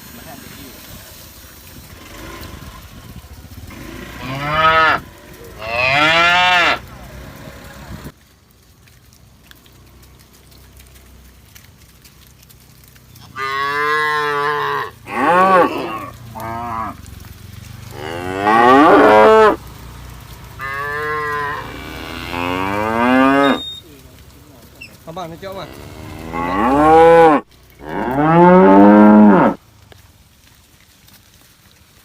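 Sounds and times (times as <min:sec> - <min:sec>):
cattle mooing: 0:03.7 - 0:06.8, 0:13.3 - 0:17.0, 0:17.9 - 0:19.6, 0:20.6 - 0:23.7, 0:25.6 - 0:29.6.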